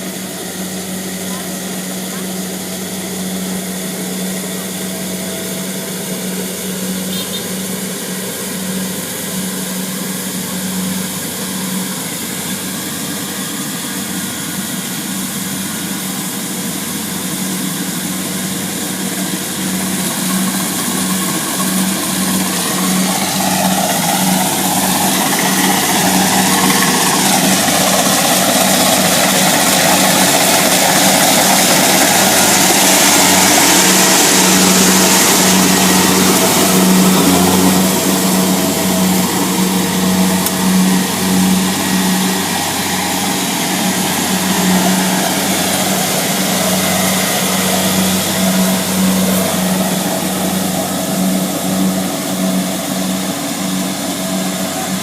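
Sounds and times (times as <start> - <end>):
combine harvester diesel engine: 0.0 - 55.0
whine sliding down in pitch: 19.5 - 55.0.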